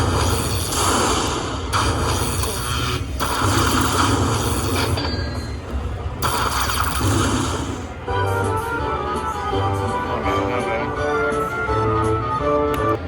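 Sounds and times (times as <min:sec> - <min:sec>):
slot machine rushing sound: 0:00.0 - 0:05.6, 0:06.2 - 0:08.0.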